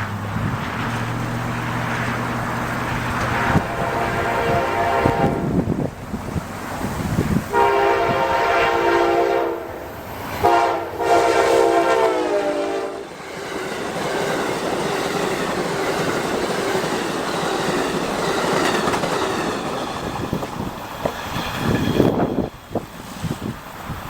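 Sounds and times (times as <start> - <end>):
train wheels on rails: 0.0 - 24.0
train horn: 2.9 - 5.9, 7.5 - 13.2.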